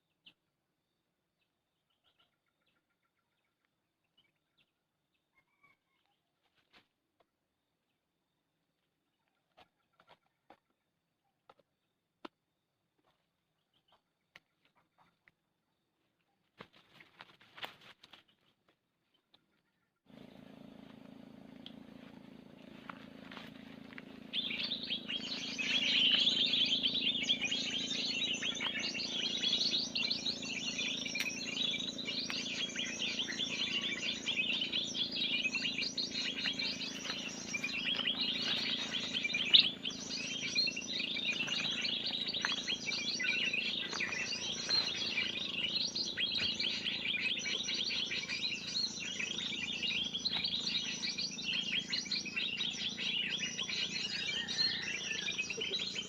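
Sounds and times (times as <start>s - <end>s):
small birds chirping and chattering: 19.1s - 56.0s.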